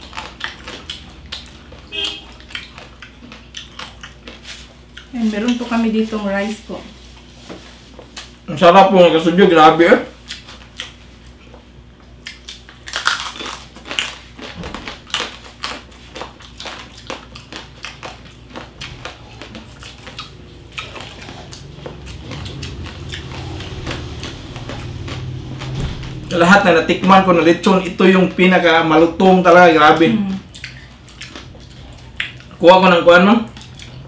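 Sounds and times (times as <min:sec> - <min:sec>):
low steady hum: 0:00.0 - 0:34.0
crunching crispy pork skin: 0:12.2 - 0:26.7.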